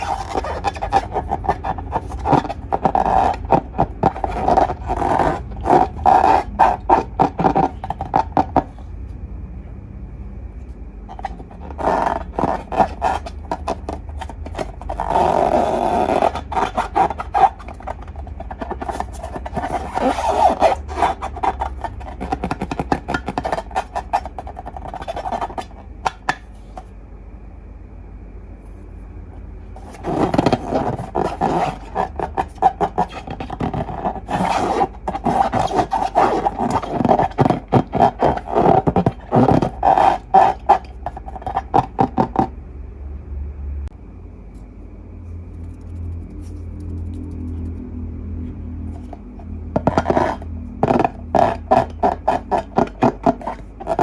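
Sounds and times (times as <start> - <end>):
rubber balloon squeaks: 0.0 - 8.8, 11.1 - 26.5, 29.8 - 42.5, 48.8 - 54.0.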